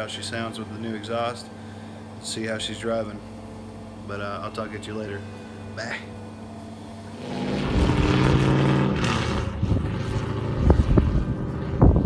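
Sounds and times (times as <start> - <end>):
car engine revving: 7.0 - 12.0.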